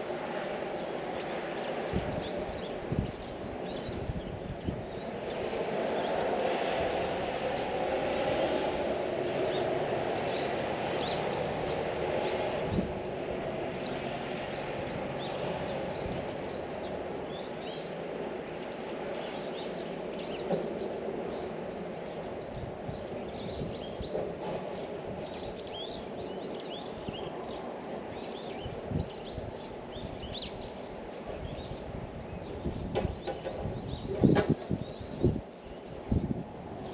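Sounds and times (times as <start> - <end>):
small birds chirping: 9.5 - 36.9.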